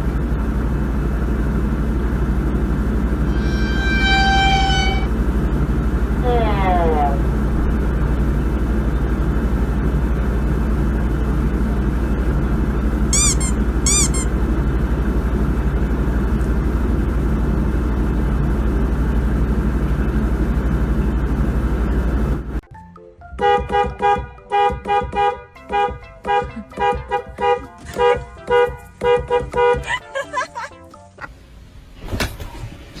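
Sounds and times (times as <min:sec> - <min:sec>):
vehicle rumbling: 0:00.0 - 0:22.6, 0:23.5 - 0:33.0
short high-pitched squeaks: 0:03.3 - 0:05.1, 0:13.1 - 0:14.4.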